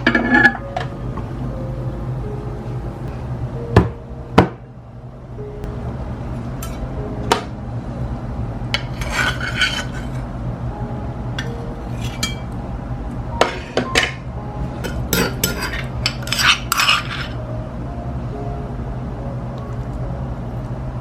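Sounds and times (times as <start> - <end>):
dishes and cutlery clinking: 0.0 - 0.9, 8.8 - 10.2, 11.4 - 12.5, 13.4 - 14.2, 14.8 - 17.4
low hum: 0.0 - 21.0.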